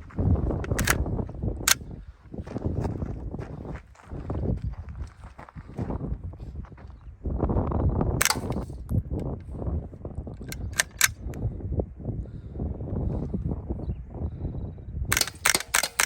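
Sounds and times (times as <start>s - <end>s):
suppressed gunshots: 0.6s - 1.0s, 8.2s - 8.8s, 15.1s - 16.0s.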